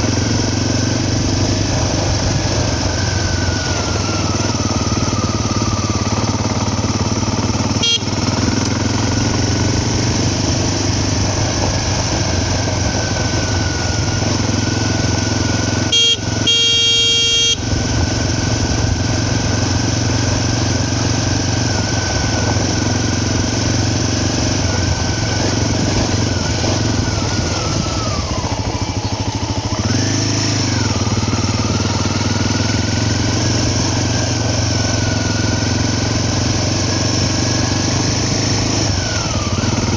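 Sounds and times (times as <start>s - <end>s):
motorcycle engine running: 0.0s - 39.9s
motorcycle horn: 1.7s - 9.6s, 15.1s - 29.2s.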